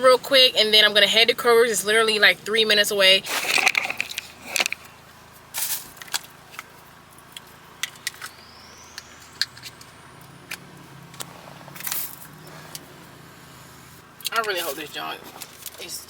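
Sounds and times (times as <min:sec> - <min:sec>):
low steady hum: 0:00.0 - 0:16.0
clicks taps and rustles handling: 0:03.3 - 0:05.0, 0:05.7 - 0:12.9
faint rising whine: 0:04.1 - 0:15.5.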